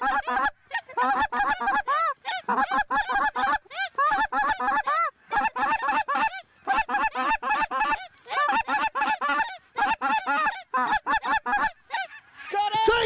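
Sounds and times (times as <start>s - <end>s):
geese clucking and honking: 0.0s - 13.0s.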